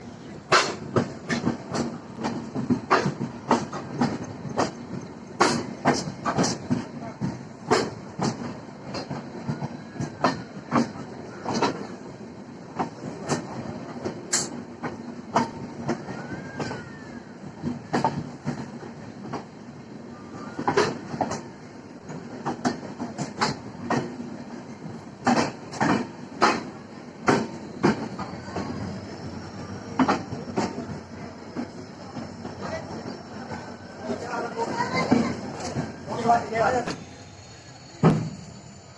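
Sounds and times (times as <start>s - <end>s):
train rumble: 0.0s - 38.9s
train wheels clacking over rail joints: 0.4s - 19.6s, 20.4s - 38.6s.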